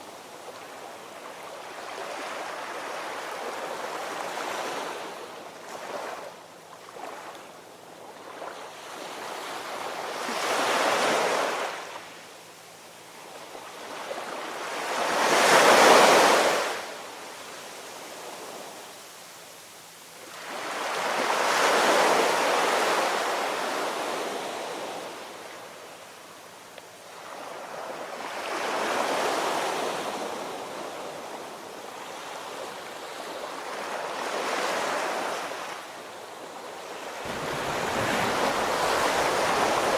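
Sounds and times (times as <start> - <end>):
ocean waves breaking: 37.2 - 39.9.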